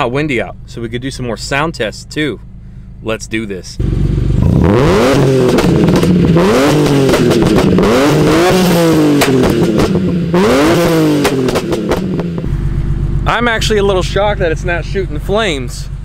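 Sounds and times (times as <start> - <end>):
car engine revving: 3.7 - 16.0
exhaust pops: 3.8 - 15.8.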